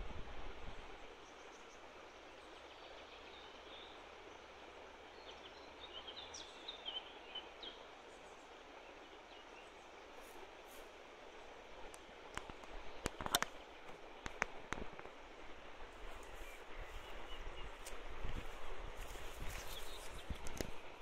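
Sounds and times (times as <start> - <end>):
faint outdoor background noise: 0.0 - 21.0
faint clicks: 11.9 - 15.1, 20.0 - 20.8.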